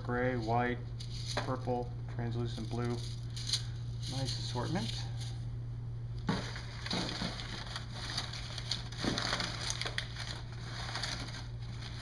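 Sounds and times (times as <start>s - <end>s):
steady low hum: 0.0s - 12.0s
plastic packaging rustling: 2.6s - 5.3s, 6.3s - 12.0s.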